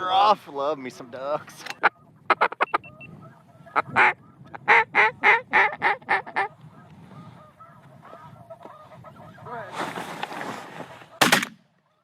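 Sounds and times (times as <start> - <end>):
geese honking in distance: 1.6 - 10.0
duck quacks: 1.8 - 9.4.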